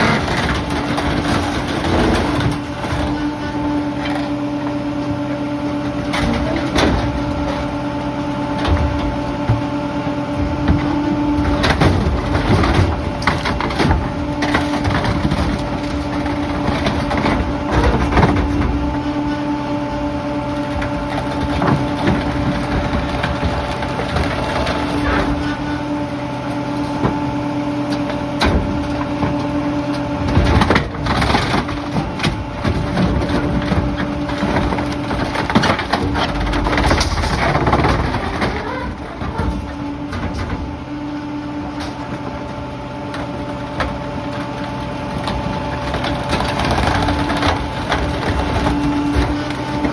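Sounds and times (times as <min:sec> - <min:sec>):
debris cracking and crunching: 0:10.4 - 0:25.9, 0:28.1 - 0:40.9, 0:41.5 - 0:49.9.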